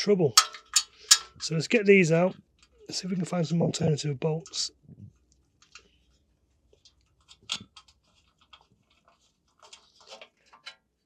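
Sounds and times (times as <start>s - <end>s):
hand tools clicking on metal bolts: 0.4s - 1.5s.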